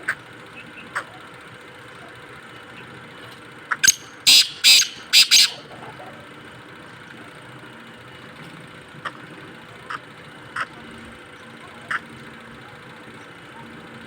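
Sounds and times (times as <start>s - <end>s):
francolin harsh rasping call: 3.7s - 5.7s.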